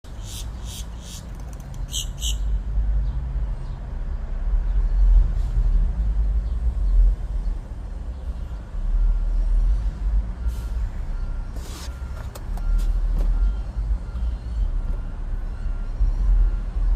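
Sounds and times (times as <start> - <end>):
bird chirping: 0.1 - 2.6.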